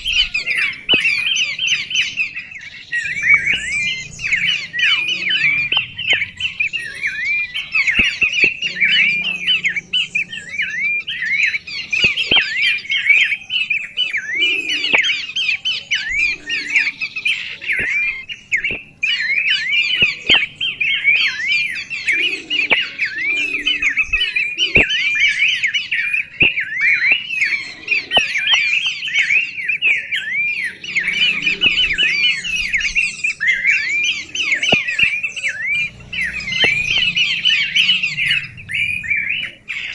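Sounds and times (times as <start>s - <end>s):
songbird chattering: 0.0s - 39.9s
sharp clicks: 0.1s - 10.8s, 11.4s - 13.4s, 16.2s - 20.8s, 34.6s - 39.9s.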